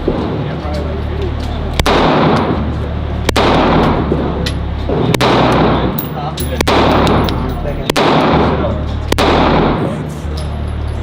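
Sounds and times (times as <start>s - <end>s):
pistol shots echoing: 1.8s - 2.6s, 3.3s - 4.1s, 5.1s - 10.0s.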